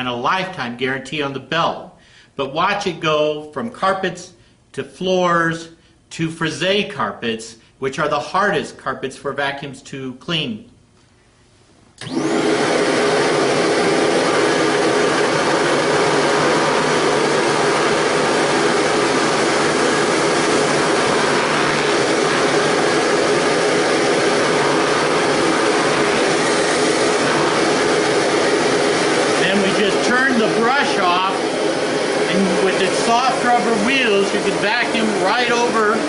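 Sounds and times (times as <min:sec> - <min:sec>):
vacuum cleaner running: 0:12.0 - 0:36.0.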